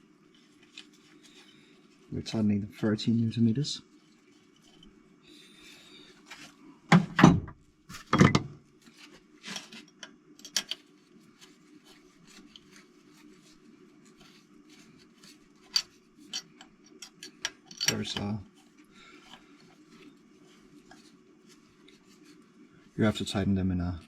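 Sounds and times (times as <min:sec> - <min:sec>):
clunks of handling tools: 0:06.9 - 0:08.6.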